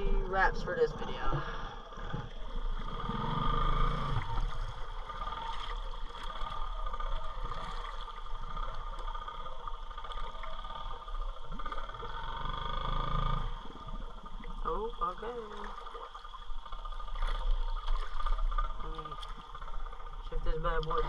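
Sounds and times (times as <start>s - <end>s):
quad bike engine running: 8.5s - 13.6s.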